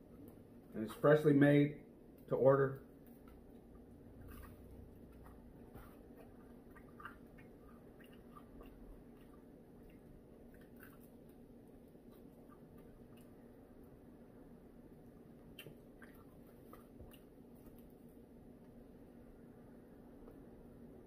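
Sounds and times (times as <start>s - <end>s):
chewing: 3.0s - 13.6s, 15.1s - 18.2s.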